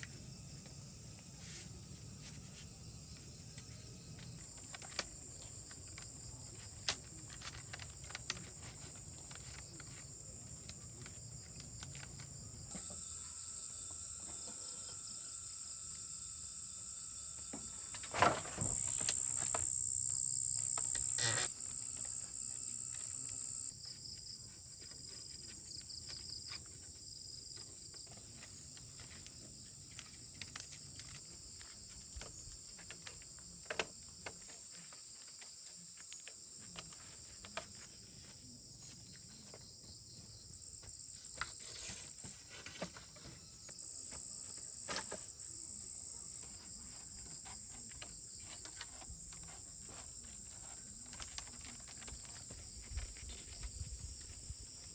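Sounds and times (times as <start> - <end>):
insects chirring: 0.0 - 54.9
small clicks and rustles: 1.4 - 12.9, 20.6 - 39.6, 46.4 - 54.9.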